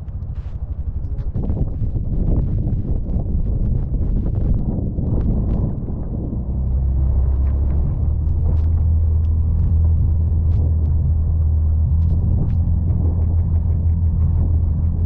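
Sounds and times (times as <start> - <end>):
vehicle engine droning under load: 0.0 - 15.0
light clicks and ticks: 7.2 - 11.2.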